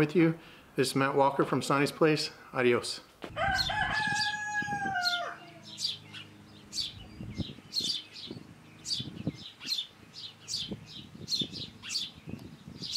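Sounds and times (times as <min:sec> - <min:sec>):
small birds chirping: 0:03.0 - 0:12.9.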